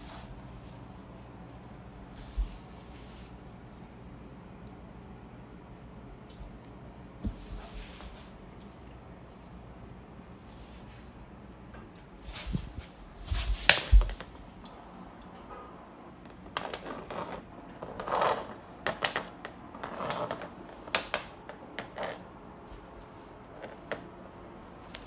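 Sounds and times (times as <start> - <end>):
pet brush rustling against fur: 0.0 - 3.5, 12.2 - 14.4.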